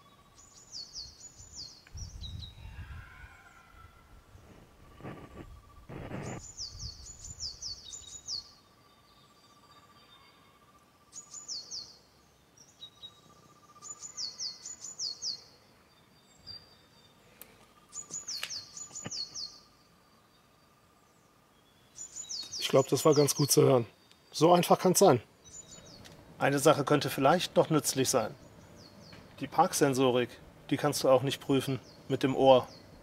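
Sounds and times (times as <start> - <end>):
faint steady tone: 3.3 - 22.6
songbird whistling: 18.0 - 19.6.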